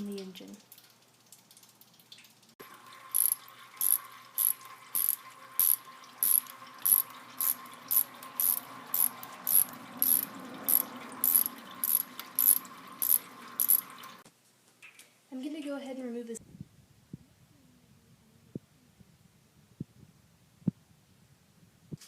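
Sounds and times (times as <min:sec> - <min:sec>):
ratchet wrench clicking: 0:03.1 - 0:13.9.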